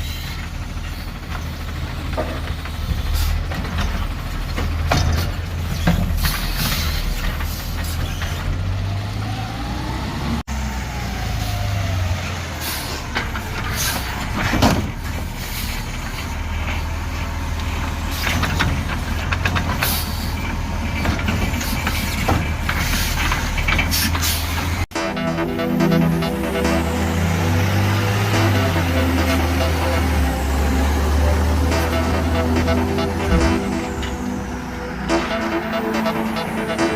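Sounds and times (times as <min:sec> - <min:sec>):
clanks from garbage truck: 0:00.0 - 0:08.8, 0:12.6 - 0:24.8
garbage truck engine humming: 0:00.0 - 0:09.9, 0:10.5 - 0:36.9
music: 0:24.9 - 0:36.9.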